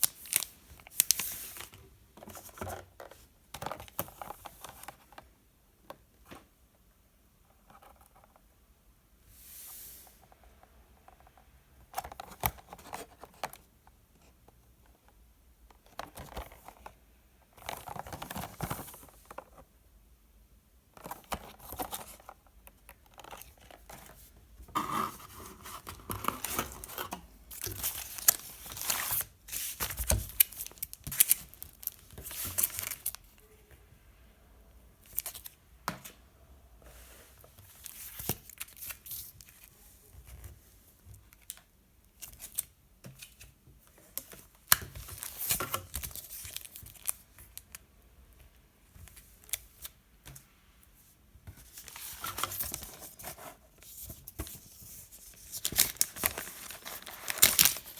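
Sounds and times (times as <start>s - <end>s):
packaging tearing and crinkling: 55.6s - 57.9s.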